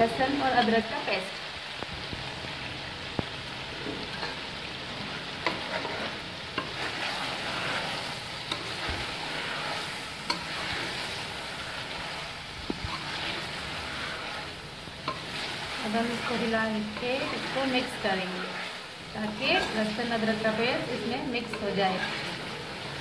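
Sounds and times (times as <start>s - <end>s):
curry sizzling in a pot: 0.0s - 23.0s
metal spoon scraping a pot: 5.4s - 12.2s, 12.8s - 23.0s.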